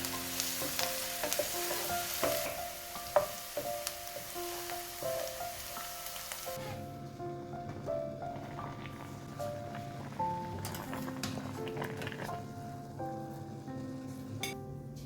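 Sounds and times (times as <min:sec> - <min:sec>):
food sizzling in oil: 0:00.0 - 0:06.8.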